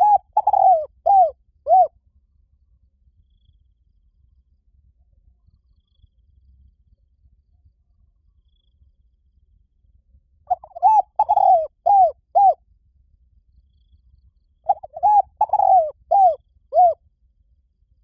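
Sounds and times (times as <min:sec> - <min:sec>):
dove cooing: 0:00.0 - 0:01.9, 0:10.5 - 0:12.6, 0:14.7 - 0:17.0.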